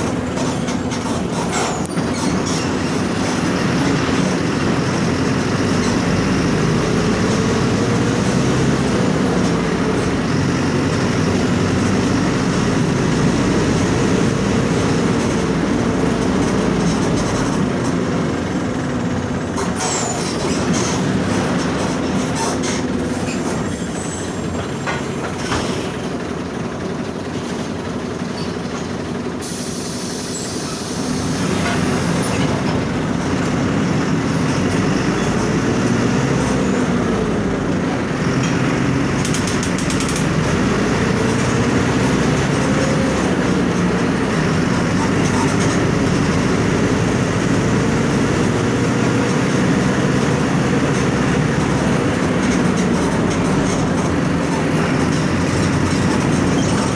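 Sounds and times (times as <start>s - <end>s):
bus diesel engine running: 0.0s - 56.9s.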